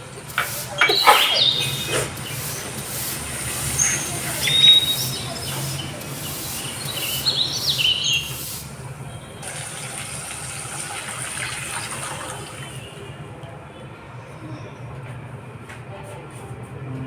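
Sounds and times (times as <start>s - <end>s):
bird chirps: 0.8s - 2.8s, 3.5s - 8.7s.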